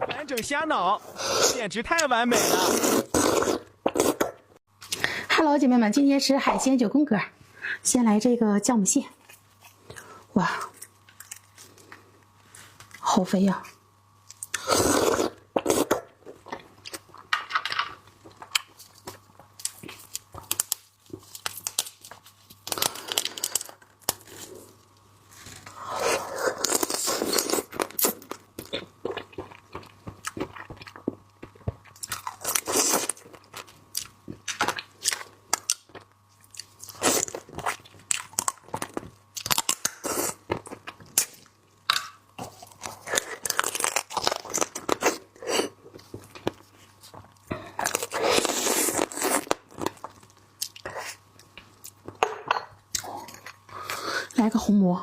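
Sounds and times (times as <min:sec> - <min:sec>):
crab shell crunching: 0:26.5 - 0:45.8.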